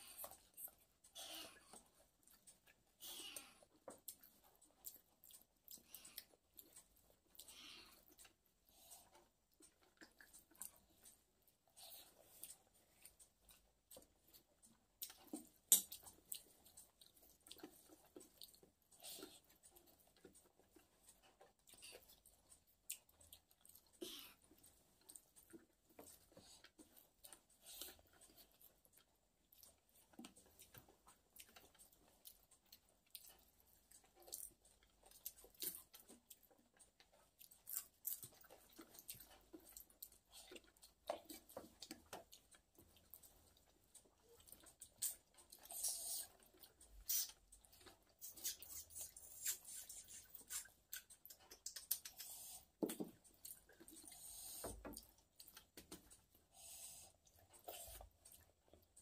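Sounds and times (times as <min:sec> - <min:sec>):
person chewing: 0:00.0 - 0:59.0
wet mouth clicks and smacks: 0:44.4 - 0:56.2.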